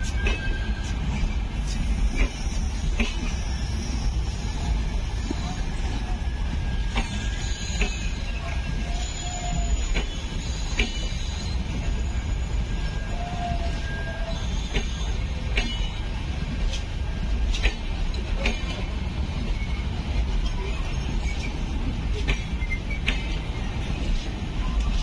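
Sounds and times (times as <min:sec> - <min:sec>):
passenger train rumbling past: 0:00.0 - 0:25.0
wheels clanking over rail joints: 0:14.5 - 0:25.0.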